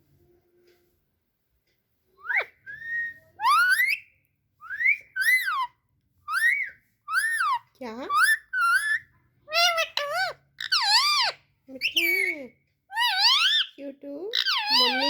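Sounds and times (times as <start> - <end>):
parrot whistling: 2.2 - 5.7, 6.3 - 12.3, 12.9 - 13.7, 14.4 - 15.0.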